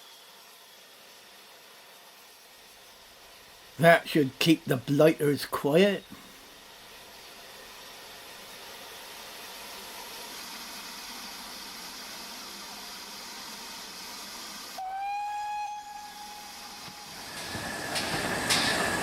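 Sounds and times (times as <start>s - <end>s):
passing train running noise: 0.0s - 19.0s
steam locomotive hissing: 0.0s - 19.0s
train whistle blast: 14.8s - 17.6s.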